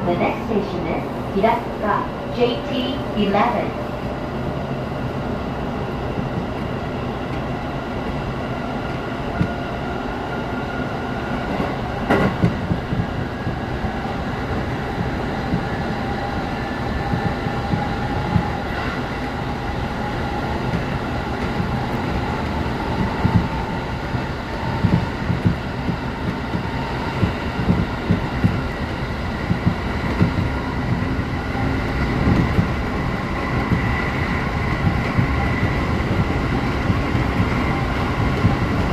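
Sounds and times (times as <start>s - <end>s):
wheels rumbling on rails: 4.0s - 38.9s
track joint clacks: 11.6s - 14.0s, 29.4s - 31.1s, 32.2s - 32.8s.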